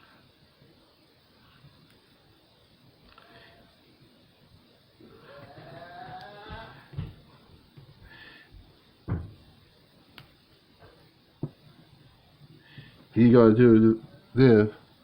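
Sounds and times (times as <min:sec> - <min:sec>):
faint voice hum: 0:05.0 - 0:07.0.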